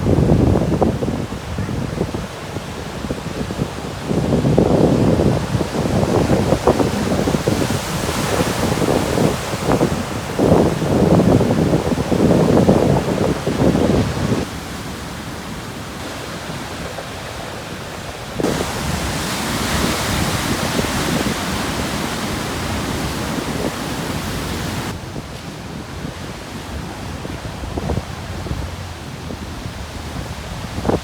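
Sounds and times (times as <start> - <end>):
surf breaking on rocky shore: 0.0 - 31.0
hiss of foaming water: 17.7 - 24.9.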